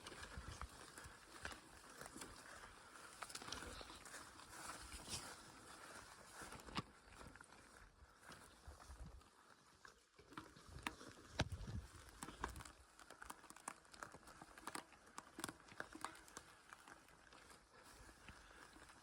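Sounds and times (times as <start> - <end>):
small clicks and snaps: 10.2 - 17.6.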